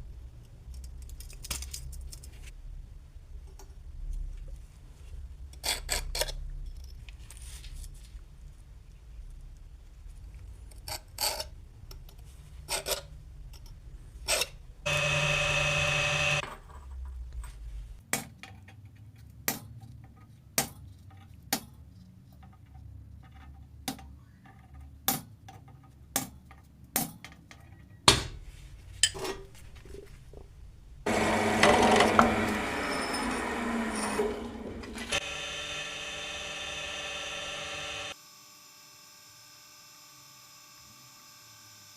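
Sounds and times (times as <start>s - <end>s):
power tool running: 14.9s - 16.4s, 31.1s - 41.9s.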